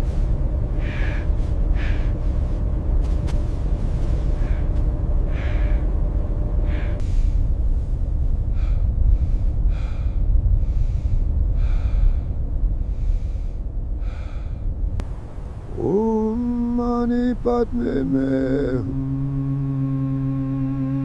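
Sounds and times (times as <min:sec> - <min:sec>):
steady hum: 0:00.0 - 0:21.0
steady low rumble: 0:00.0 - 0:21.0.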